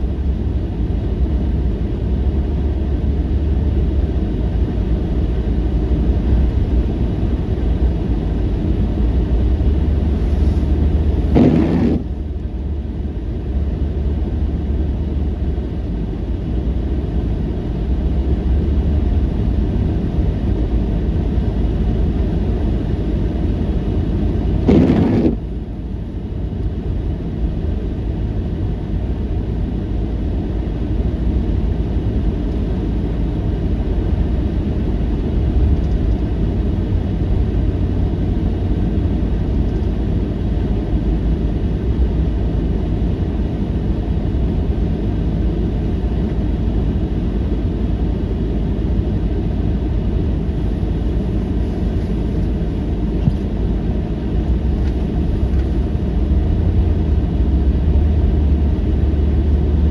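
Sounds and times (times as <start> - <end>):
low rumbling noise: 5.6 - 17.0, 17.9 - 26.0.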